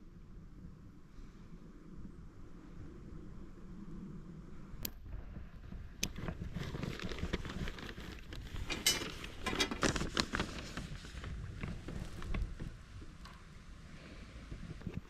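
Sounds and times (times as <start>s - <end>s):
fabric rustling and crackling: 5.7s - 13.2s.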